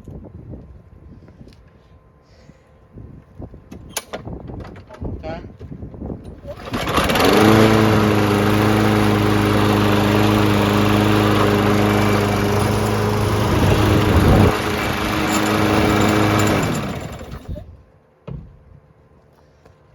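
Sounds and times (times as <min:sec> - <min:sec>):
lawn mower engine running: 0:06.3 - 0:17.6
engine spinning down: 0:06.5 - 0:17.6.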